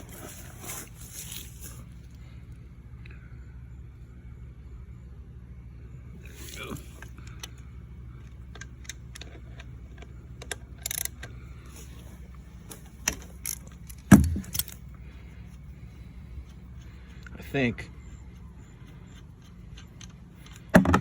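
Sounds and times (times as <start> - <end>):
metallic tool clicks and clinks: 13.0 - 14.9.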